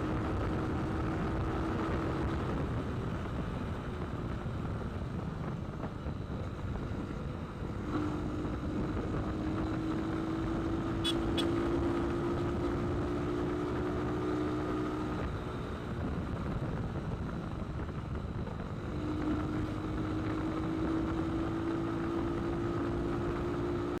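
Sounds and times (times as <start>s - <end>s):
wind and road noise: 0.0s - 24.0s
motorcycle engine tone: 6.1s - 15.7s.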